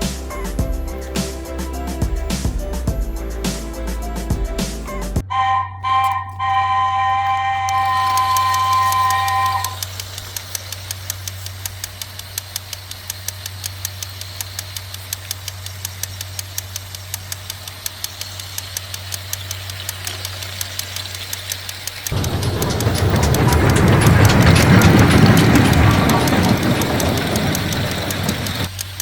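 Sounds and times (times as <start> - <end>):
rapid clicking of toy train: 0.0 - 1.9, 7.3 - 29.0
music: 0.0 - 9.7
toy train motor humming: 6.4 - 29.0.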